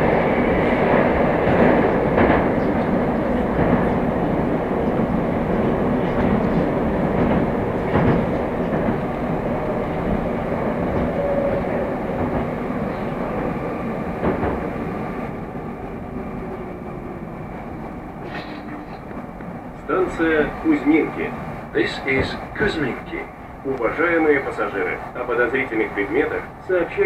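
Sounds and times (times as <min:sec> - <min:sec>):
metro train rumbling on track: 0:00.0 - 0:27.0
wheels clicking over rail joints: 0:00.8 - 0:15.1.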